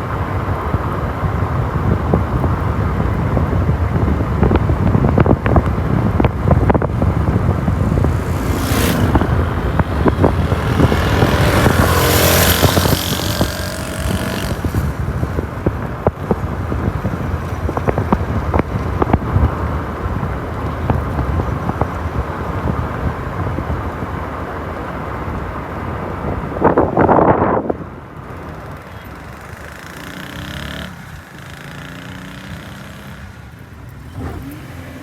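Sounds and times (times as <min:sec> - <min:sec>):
vehicles passing with heavy rumble: 0:00.0 - 0:35.0
engine changing pitch: 0:06.0 - 0:15.6.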